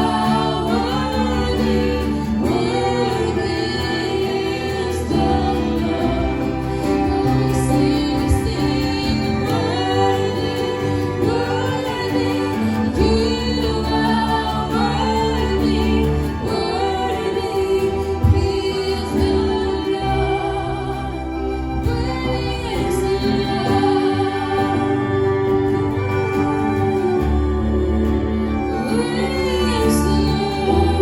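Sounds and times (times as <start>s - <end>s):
singers holding long notes: 0.0s - 31.0s
steady bass accompaniment: 0.0s - 31.0s
worship band playing: 0.0s - 31.0s.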